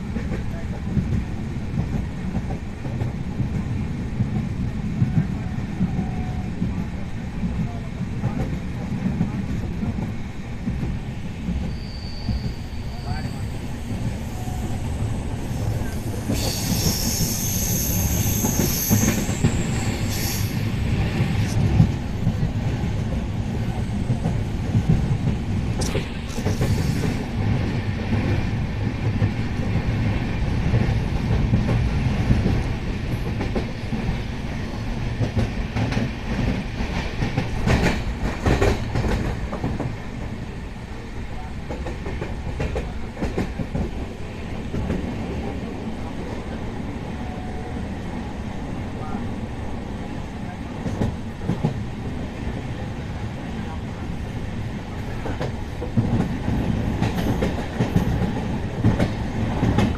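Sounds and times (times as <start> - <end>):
train rumbling on track: 0.0 - 59.9
high wheel squeal: 11.6 - 20.7.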